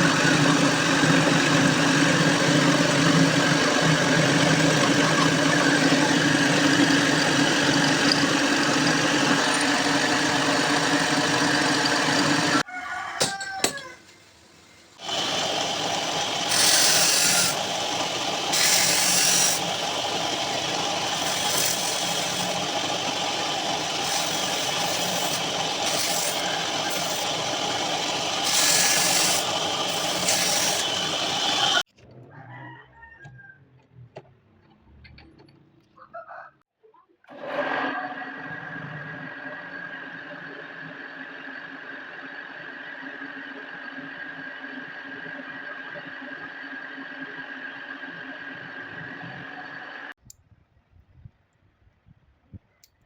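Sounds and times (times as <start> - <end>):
machine starting: 0.0 - 12.6, 15.0 - 31.9
power tool machining metal: 0.0 - 12.6, 15.0 - 31.8.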